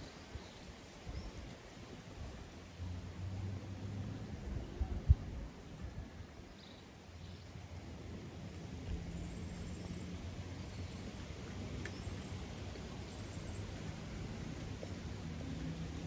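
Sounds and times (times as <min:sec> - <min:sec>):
gusty wind: 0:00.0 - 0:06.6.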